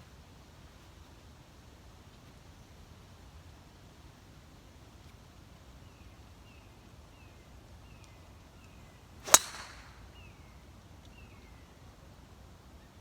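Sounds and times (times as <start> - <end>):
golf club striking ball: 9.2 - 10.2
short hiss: 9.3 - 10.0.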